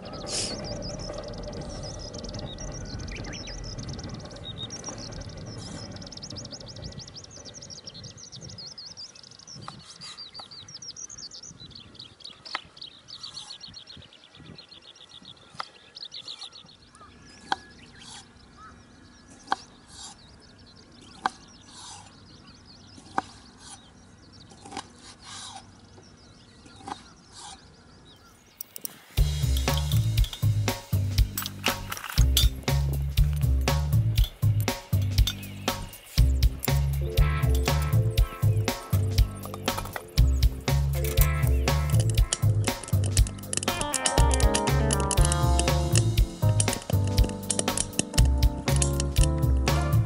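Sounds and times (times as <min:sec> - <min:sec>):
low rumble: 0:00.0 - 0:08.8, 0:29.2 - 0:43.6
small birds trilling: 0:00.0 - 0:50.0.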